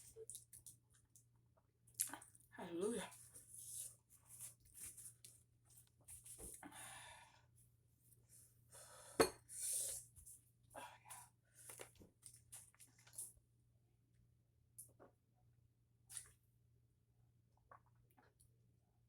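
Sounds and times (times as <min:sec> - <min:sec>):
chewing and wet mouth sounds: 0:00.0 - 0:02.5, 0:11.6 - 0:13.4, 0:17.6 - 0:18.5.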